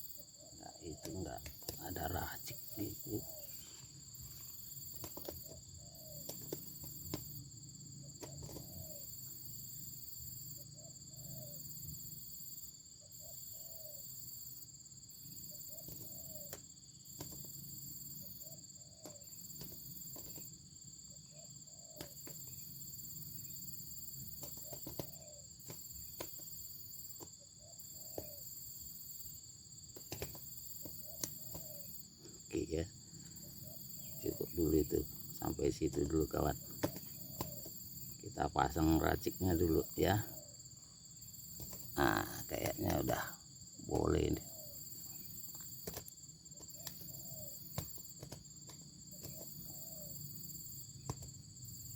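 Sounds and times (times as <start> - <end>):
doves cooing: 0.0 - 7.3, 8.0 - 9.5, 13.2 - 14.2, 15.4 - 16.6, 24.3 - 26.5, 27.6 - 28.6, 30.0 - 40.7, 41.5 - 51.2.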